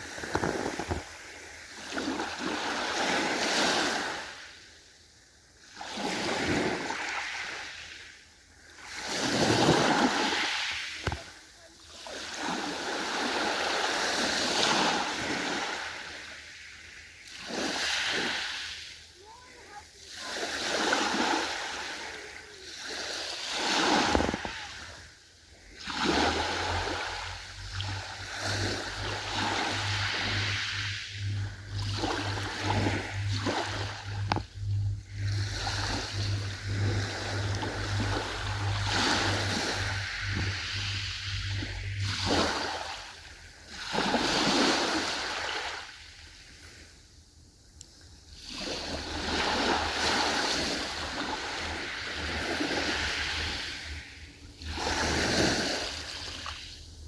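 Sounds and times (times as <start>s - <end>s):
ocean waves washing in: 0.0s - 47.0s, 48.2s - 57.0s
low steady hum: 18.8s - 57.0s.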